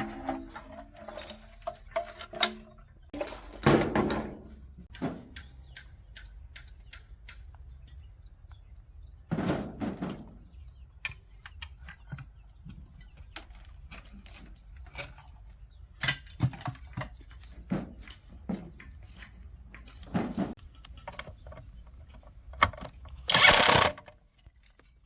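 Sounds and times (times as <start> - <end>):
loud clatter: 23.3 - 24.1.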